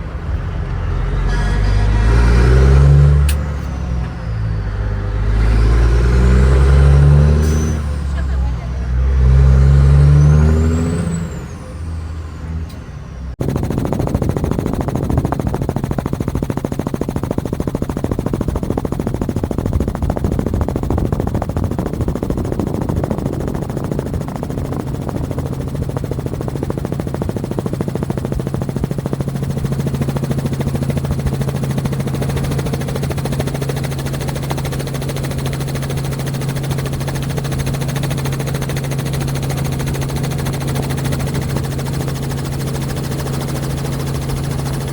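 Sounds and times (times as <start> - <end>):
helicopter rotor chop: 0.0 - 11.9, 13.4 - 44.9
heavy truck engine: 0.0 - 27.3
steady engine drone: 0.0 - 44.9.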